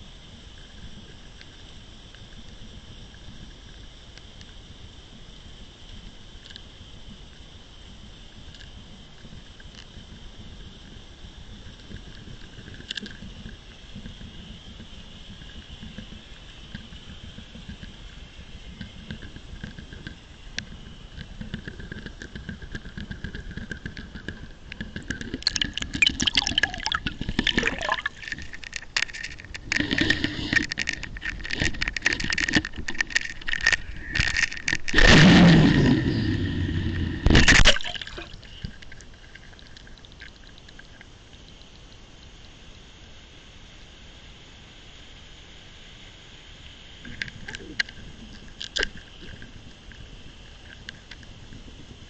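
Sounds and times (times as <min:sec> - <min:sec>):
water gurgling and splashing: 0:23.0 - 0:40.9.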